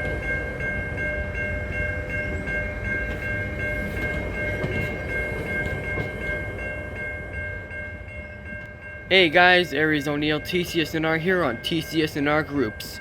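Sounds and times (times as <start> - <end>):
bell ringing: 0.0 - 13.0
train rumbling by: 0.0 - 13.0.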